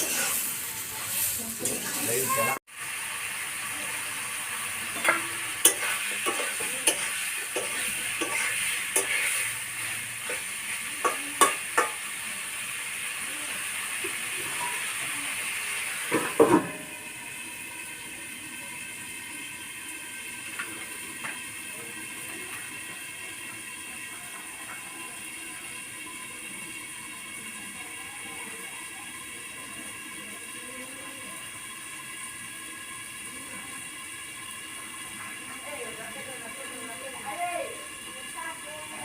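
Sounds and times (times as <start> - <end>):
curry sizzling in a pot: 0.0 - 39.0
utensil knocking and scraping pot: 4.9 - 12.0.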